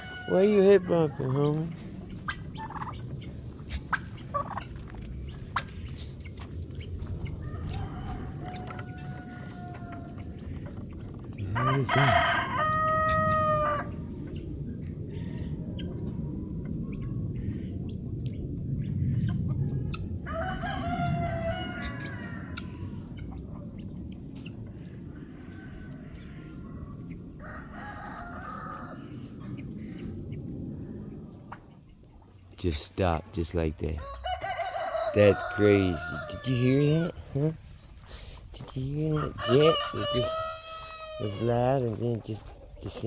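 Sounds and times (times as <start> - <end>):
rooster crowing: 0.0 - 1.2, 7.4 - 10.2, 11.5 - 13.9, 20.2 - 22.6, 27.4 - 29.1, 34.0 - 37.1, 39.1 - 41.4
poultry clucking: 0.0 - 16.1, 17.9 - 43.0
low rumble: 0.0 - 43.0.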